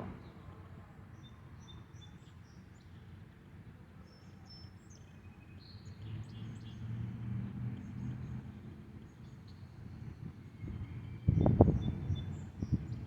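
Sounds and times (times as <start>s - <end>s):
low hum: 0.0s - 0.6s.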